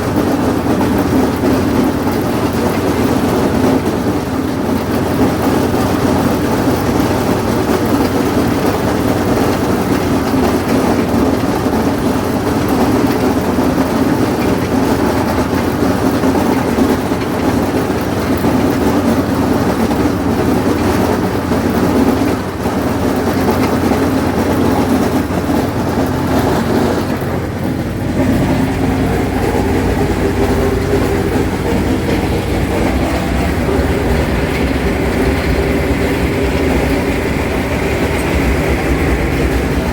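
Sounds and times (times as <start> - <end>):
mower hammering and clanking: 0.0 - 39.9
tractor diesel engine under load: 0.0 - 39.9
deep rumble: 23.2 - 39.9.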